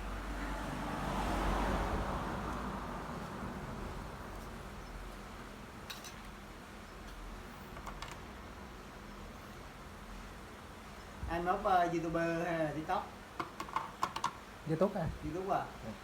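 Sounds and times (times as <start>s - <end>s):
road vehicle passing by: 0.0s - 5.7s.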